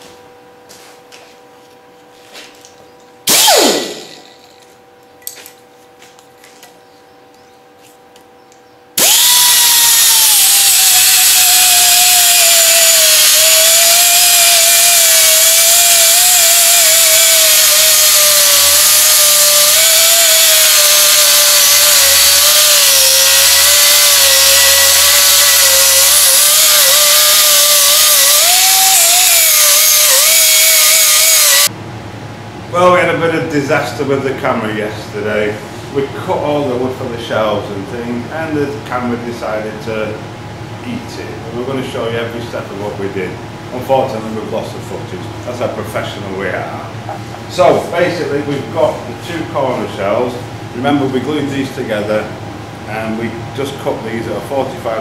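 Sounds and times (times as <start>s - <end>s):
angle grinder whining: 3.3s - 4.7s, 9.0s - 31.7s.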